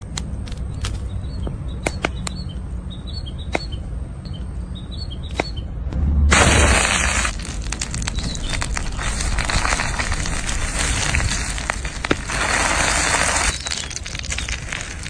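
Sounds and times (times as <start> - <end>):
cooking sizzle and crackle: 6.4 - 15.0.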